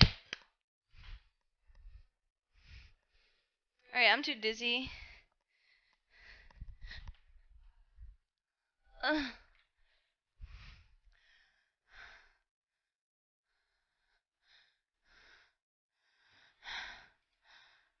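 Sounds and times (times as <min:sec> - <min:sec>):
person breathing heavily: 0:01.0 - 0:03.6.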